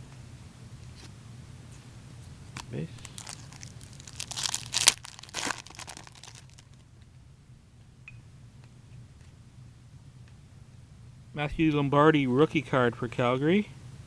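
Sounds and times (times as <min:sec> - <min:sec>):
cards being handled: 0:02.6 - 0:06.8
foil wrapper tearing and crinkling: 0:02.9 - 0:06.8.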